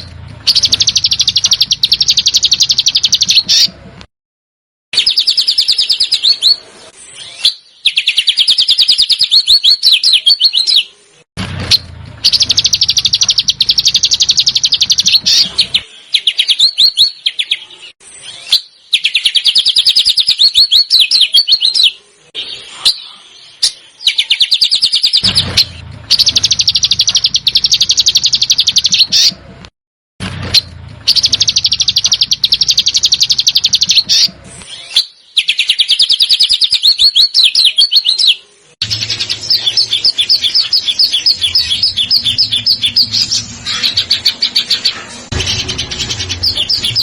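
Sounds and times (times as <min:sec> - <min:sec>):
songbird rattling chatter: 0:00.4 - 0:03.7, 0:12.2 - 0:15.8, 0:24.5 - 0:29.4, 0:31.0 - 0:34.4.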